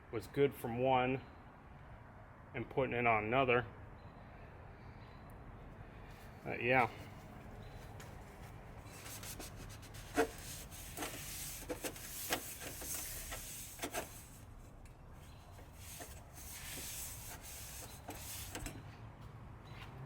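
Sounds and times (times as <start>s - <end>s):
rubbing and scraping: 8.8s - 14.5s, 15.2s - 18.7s.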